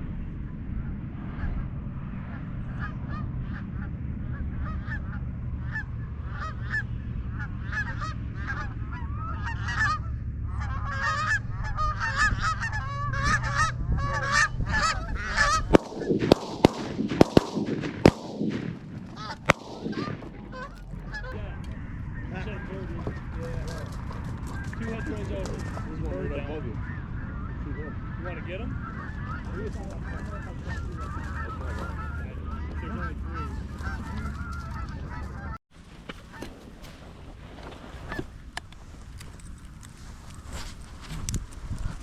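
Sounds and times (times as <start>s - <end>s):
geese honking: 1.2s - 35.6s
shotgun shots: 15.3s - 21.4s.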